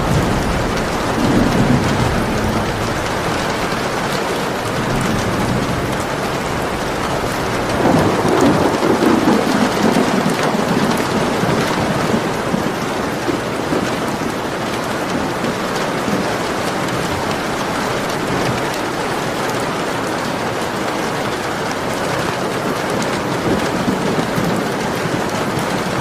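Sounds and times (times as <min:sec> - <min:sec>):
low rumble of thunder: 0:00.0 - 0:19.1
steady rain falling: 0:00.0 - 0:26.0.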